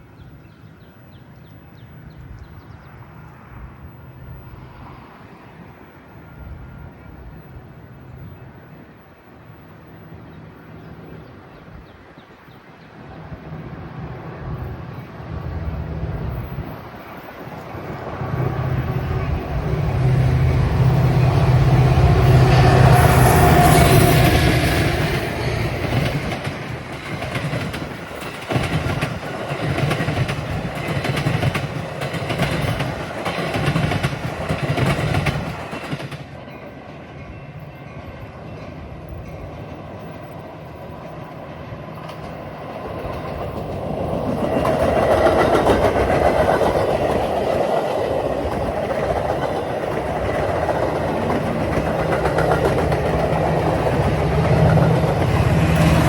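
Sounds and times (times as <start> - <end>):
train wheels clacking over rail joints: 22.2 - 36.4, 42.0 - 56.0.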